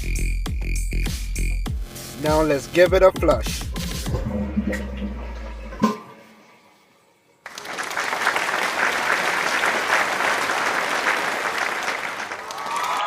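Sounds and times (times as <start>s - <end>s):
crowd applauding: 7.4s - 13.0s.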